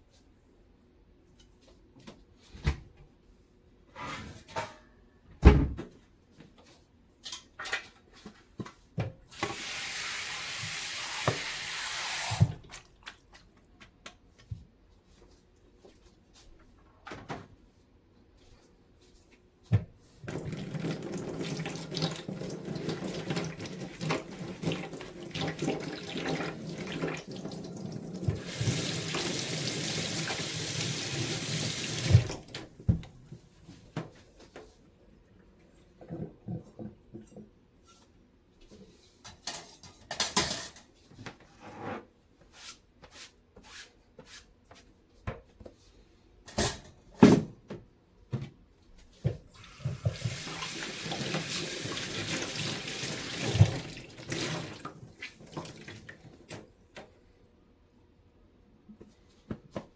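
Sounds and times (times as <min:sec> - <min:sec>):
tap running into a sink: 0:10.6 - 0:12.6, 0:49.6 - 0:51.6
knocks and clatter at sink: 0:49.3 - 0:50.5.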